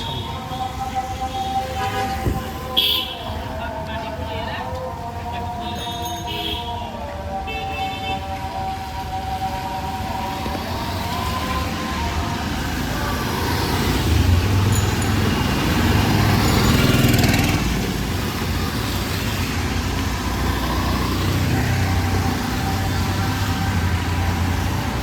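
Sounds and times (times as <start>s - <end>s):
traffic engines running: 0.0s - 25.0s
vehicle passing close by: 10.8s - 25.0s.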